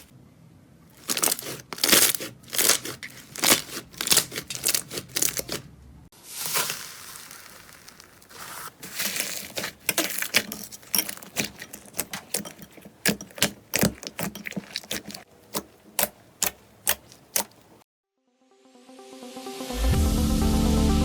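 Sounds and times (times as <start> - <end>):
slime clicking and popping: 1.1 - 5.6.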